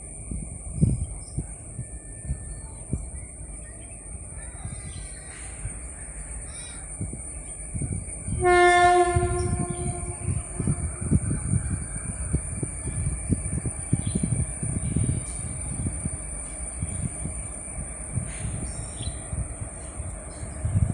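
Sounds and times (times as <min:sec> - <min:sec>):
moving train rumble: 0:00.0 - 0:20.9
locomotive horn blast: 0:08.4 - 0:11.0.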